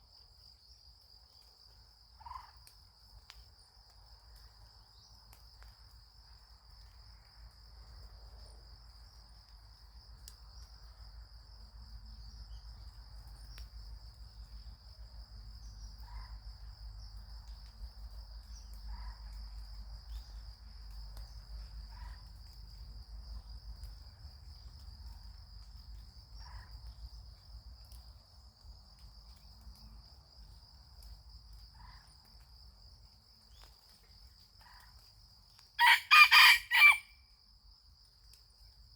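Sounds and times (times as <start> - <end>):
insects trilling: 28.2 - 38.9.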